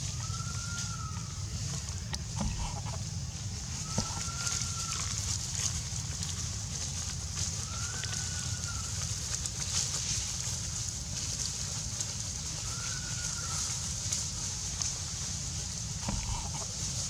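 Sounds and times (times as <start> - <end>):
long whistled calls: 0.0 - 3.0, 3.7 - 5.2, 12.7 - 13.6, 16.0 - 16.8
low rumble: 1.2 - 4.3.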